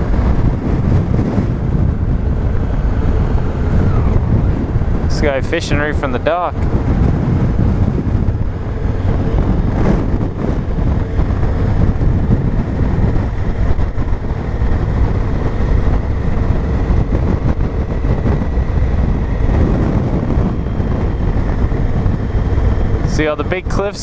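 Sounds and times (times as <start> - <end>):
motorcycle engine droning: 0.0 - 24.0
wind rushing on microphone: 0.0 - 24.0.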